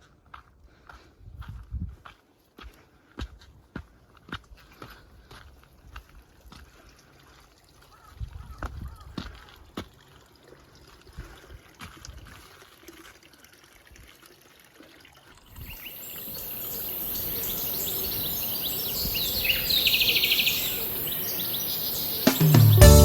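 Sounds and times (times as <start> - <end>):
running water: 9.8 - 23.0
small birds chirping: 15.6 - 23.0
rapid bird trill: 15.7 - 22.8.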